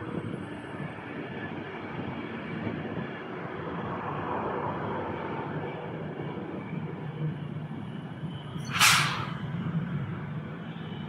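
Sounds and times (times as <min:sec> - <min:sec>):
train wheels rumbling on rails: 0:08.6 - 0:10.1.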